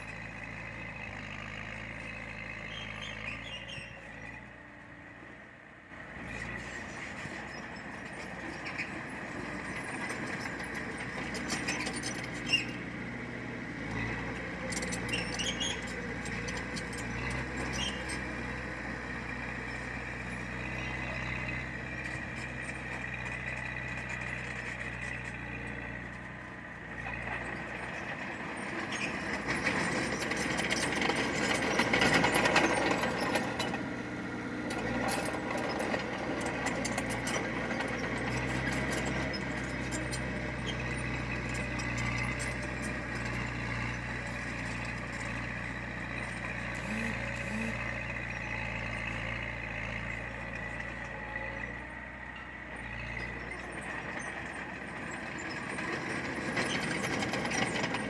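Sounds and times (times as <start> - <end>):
heavy machinery diesel engine: 0.0 - 58.0
high squeal: 2.7 - 4.2.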